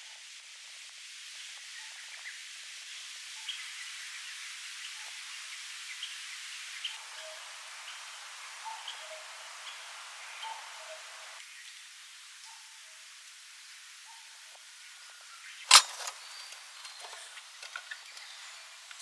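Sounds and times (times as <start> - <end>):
birds chirping: 6.8 - 11.4, 14.9 - 19.0.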